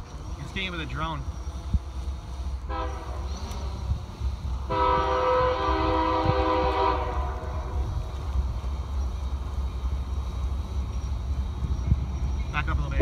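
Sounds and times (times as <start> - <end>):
steady low rumble: 0.0 - 13.0
locomotive air horn blasts: 2.6 - 8.0.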